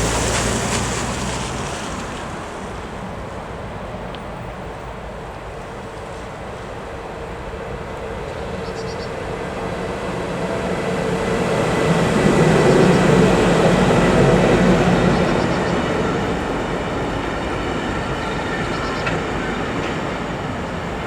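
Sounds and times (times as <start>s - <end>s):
train passing on rails: 0.0s - 21.0s.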